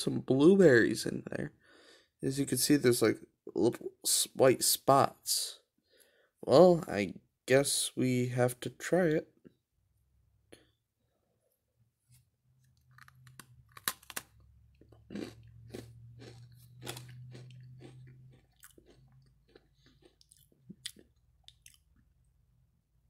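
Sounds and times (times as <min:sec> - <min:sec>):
cookie crunching: 0:12.6 - 0:22.2.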